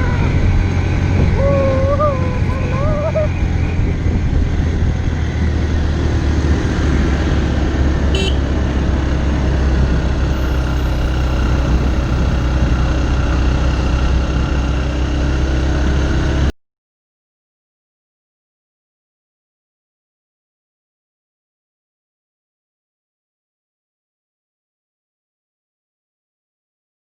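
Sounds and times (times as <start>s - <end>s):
motorcycle engine running: 0.0s - 16.5s
wind rumble on microphone: 0.0s - 16.5s.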